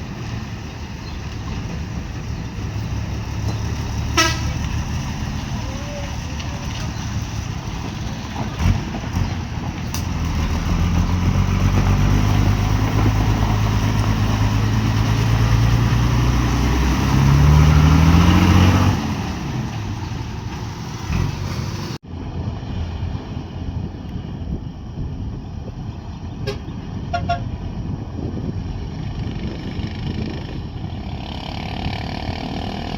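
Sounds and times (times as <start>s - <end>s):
truck engine revving: 0.0s - 22.0s.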